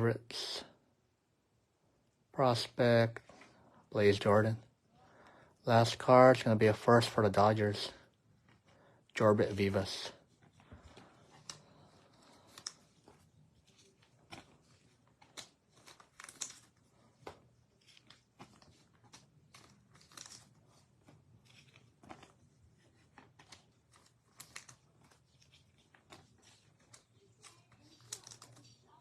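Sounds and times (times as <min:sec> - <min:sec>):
card wrappers crinkling and rustling: 0:05.8 - 0:29.0.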